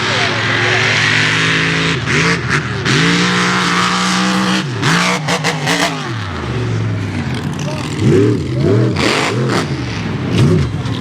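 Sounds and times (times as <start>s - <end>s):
truck engine at high revs: 0.0s - 11.0s.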